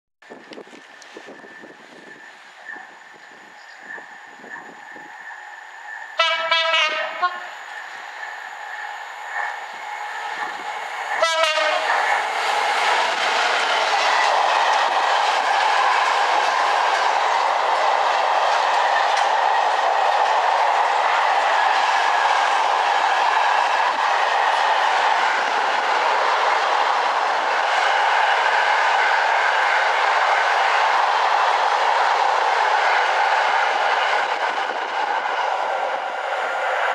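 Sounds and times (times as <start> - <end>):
locomotive horn blasts: 6.2 - 7.5, 11.2 - 11.9.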